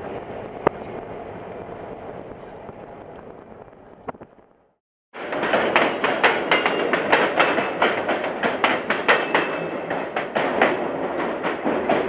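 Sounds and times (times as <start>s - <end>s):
train rumble: 0.0s - 4.6s, 5.2s - 12.0s
train wheels clacking over rail joints: 5.2s - 12.0s.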